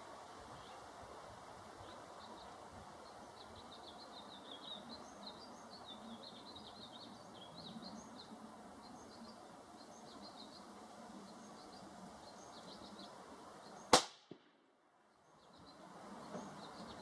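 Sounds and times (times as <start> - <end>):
faint birds chirping: 0.0 - 17.0
outdoor background hiss: 0.0 - 17.0.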